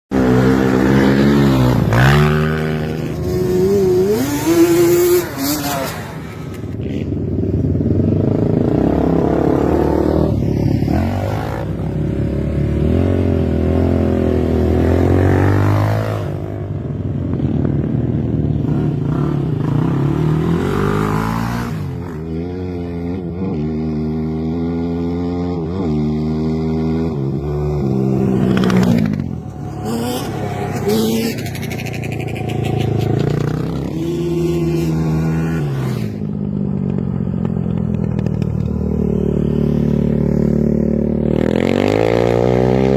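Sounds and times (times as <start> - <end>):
quad bike engines revving: 0.1 - 42.9.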